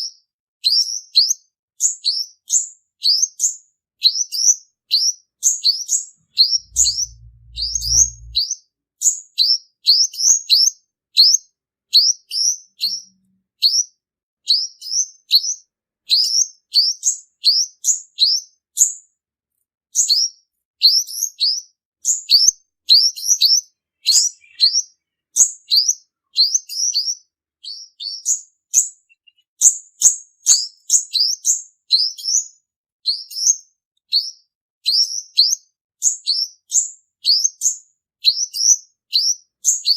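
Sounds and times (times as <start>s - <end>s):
sunbird singing high chirps: 5.0s - 8.4s, 21.4s - 29.6s.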